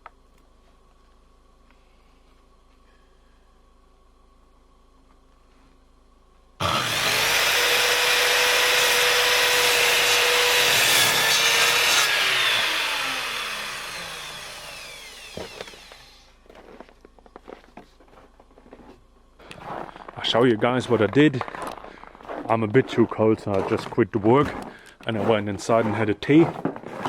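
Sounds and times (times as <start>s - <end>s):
power saw cutting wood: 6.6s - 16.4s, 25.2s - 27.0s.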